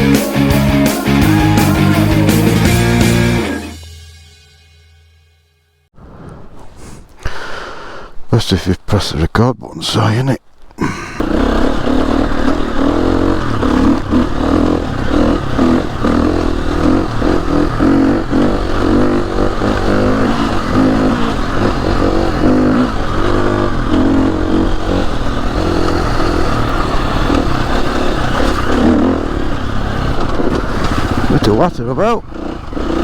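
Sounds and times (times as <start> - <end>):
motorcycle engine revving: 0.0 - 4.0, 10.8 - 33.0.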